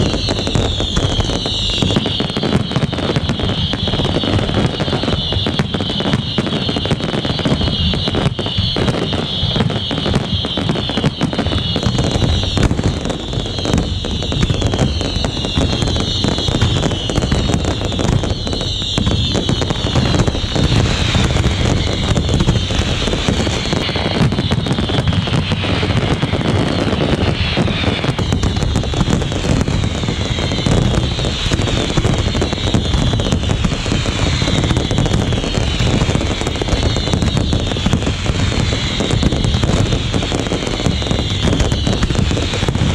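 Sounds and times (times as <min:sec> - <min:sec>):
fireworks bangs and crackle: 0:00.0 - 0:42.9
whistling firework shells: 0:00.0 - 0:42.9.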